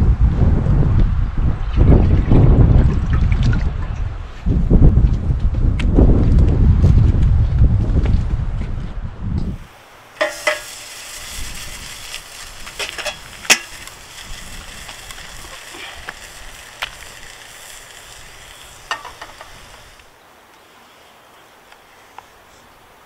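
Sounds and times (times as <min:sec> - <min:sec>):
food sizzling in pan: 0:09.6 - 0:20.1.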